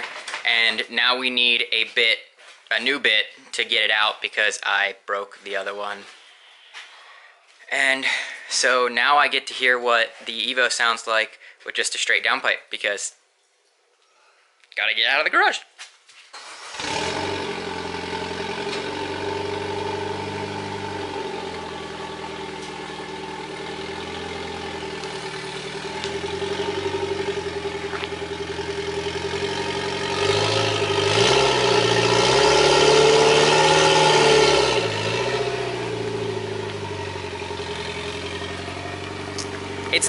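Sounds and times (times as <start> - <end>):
car engine idling and revving: 16.4 - 40.0.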